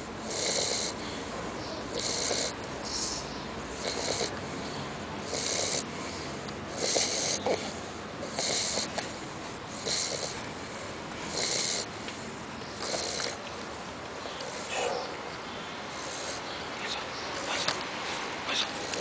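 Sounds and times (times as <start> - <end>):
puppy snoring with wheezy breaths: 0.0 - 13.5, 14.3 - 15.1, 15.8 - 19.0.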